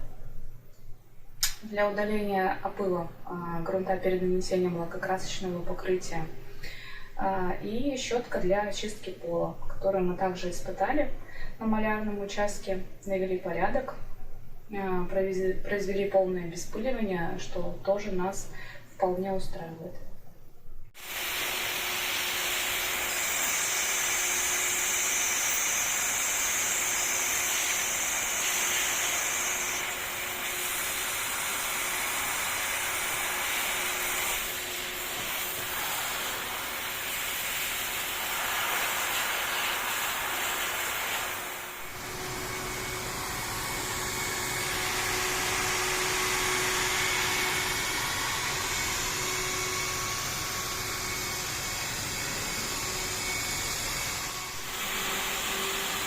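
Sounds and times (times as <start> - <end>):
vacuum cleaner running: 21.0 - 56.0.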